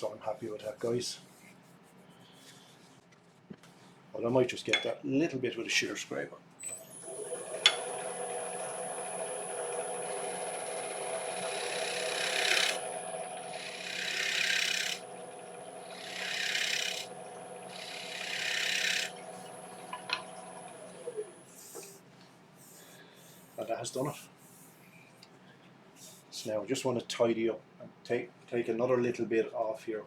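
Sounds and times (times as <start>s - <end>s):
wood lathe whining: 6.7s - 21.9s
scraper hissing on spinning wood: 9.6s - 22.0s.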